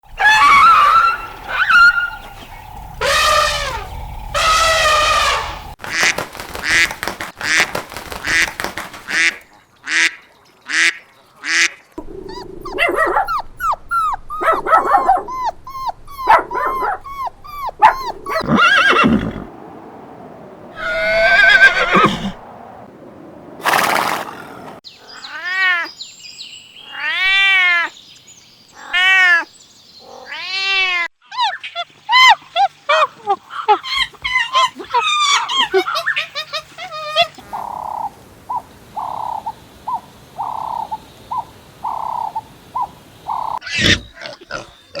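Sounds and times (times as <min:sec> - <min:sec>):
animal cries: 0:00.1 - 0:05.8, 0:12.0 - 0:19.5, 0:20.8 - 0:22.4, 0:25.0 - 0:25.9, 0:28.8 - 0:37.4
dog barks: 0:12.0 - 0:18.4
horse whinnies: 0:12.0 - 0:19.5, 0:20.8 - 0:22.4.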